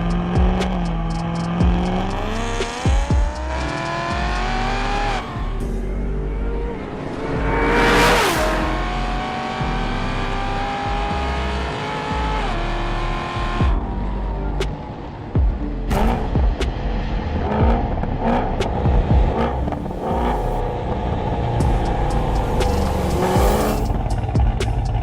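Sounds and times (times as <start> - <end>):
car engine accelerating hard: 0.0 - 25.0
loud rushing burst: 6.7 - 9.5.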